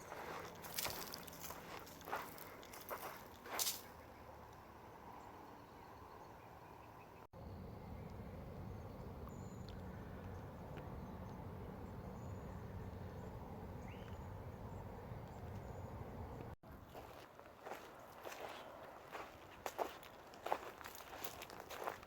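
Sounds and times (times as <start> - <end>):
low outdoor rumble: 7.4 - 17.8
bird chirps: 8.7 - 16.4.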